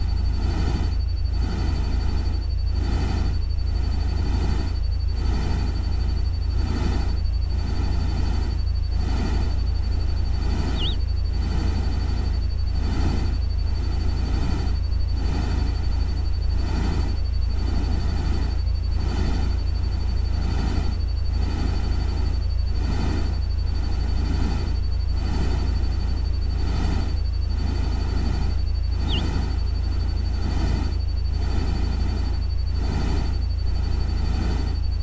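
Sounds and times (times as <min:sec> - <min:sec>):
steady low rumble: 0:00.0 - 0:23.8, 0:25.6 - 0:35.0
thin high tone: 0:10.7 - 0:11.0, 0:29.0 - 0:29.3.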